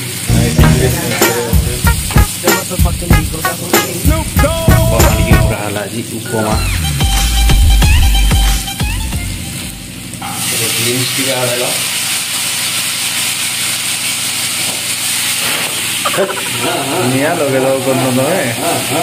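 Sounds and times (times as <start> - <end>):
vegetables sizzling in oil: 0.0 - 19.0
background music: 0.3 - 5.6, 6.5 - 9.8.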